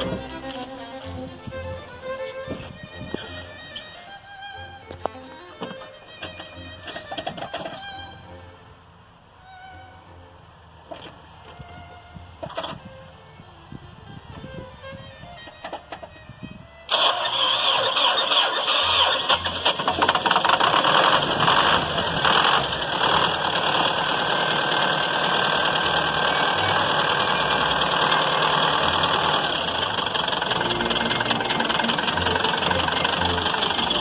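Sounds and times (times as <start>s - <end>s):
diesel engine idling: 0.0s - 8.4s, 16.9s - 34.0s.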